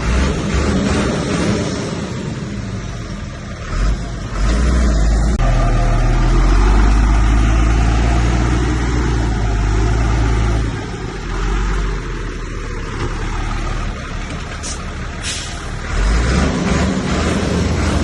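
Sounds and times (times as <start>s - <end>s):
bulldozer diesel engine drone: 0.0s - 18.0s.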